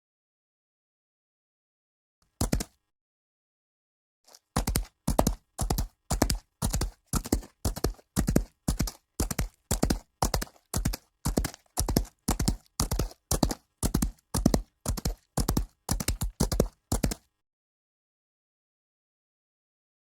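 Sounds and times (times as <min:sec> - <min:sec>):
horse hooves on hard surface: 0:02.4 - 0:02.7, 0:04.3 - 0:17.3.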